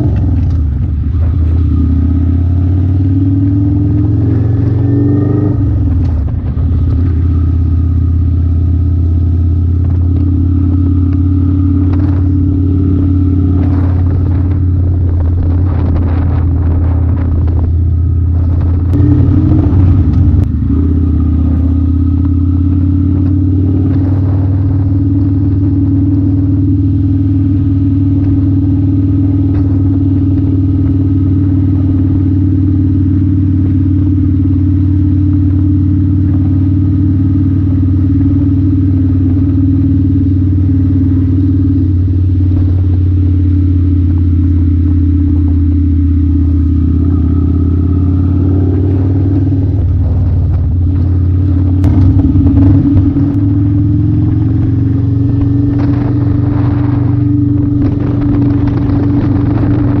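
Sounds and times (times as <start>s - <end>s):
motorcycle engine cruising: 0.0s - 60.0s.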